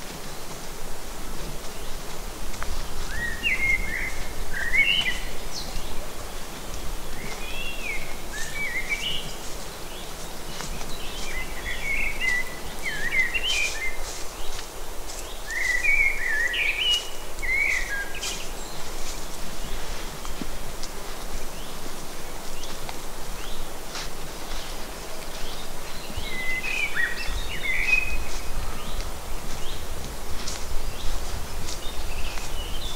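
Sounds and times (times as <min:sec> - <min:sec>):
low woodland rumble: 0:00.0 - 0:32.9
faint crackles: 0:17.0 - 0:26.2.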